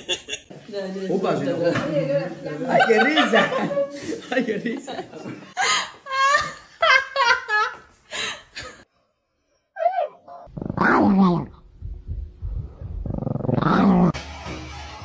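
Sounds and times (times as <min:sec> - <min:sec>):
woman laughing: 0:05.6 - 0:07.8
dog growling and barking: 0:09.9 - 0:14.2.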